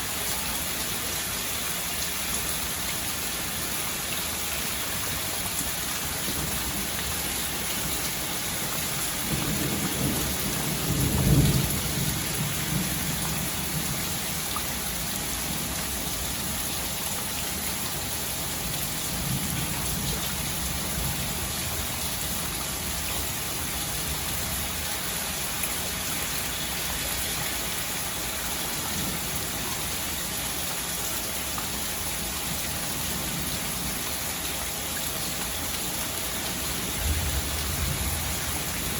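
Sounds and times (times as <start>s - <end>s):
rain hiss: 0.0s - 38.9s
thunder rumble: 9.1s - 14.1s, 36.6s - 38.9s.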